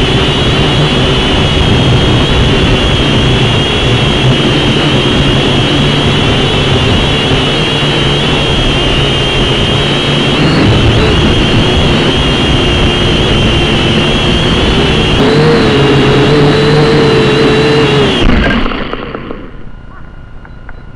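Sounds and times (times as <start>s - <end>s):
wind noise: 0.0s - 19.9s
quadcopter propellers whining: 0.0s - 20.2s.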